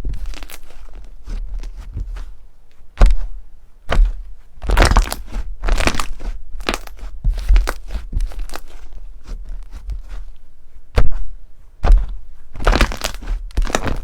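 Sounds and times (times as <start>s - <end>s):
crunchy slime crackling: 0.0s - 2.4s, 3.9s - 10.3s, 11.8s - 14.0s.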